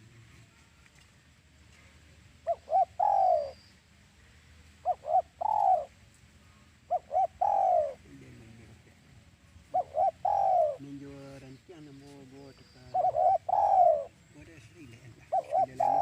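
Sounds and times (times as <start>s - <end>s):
dove cooing: 2.4s - 3.6s, 4.8s - 6.0s, 6.6s - 8.9s, 9.6s - 11.3s, 12.5s - 14.3s, 15.1s - 16.0s
fainter lower coo: 9.7s - 10.8s, 12.9s - 14.1s, 15.3s - 16.0s.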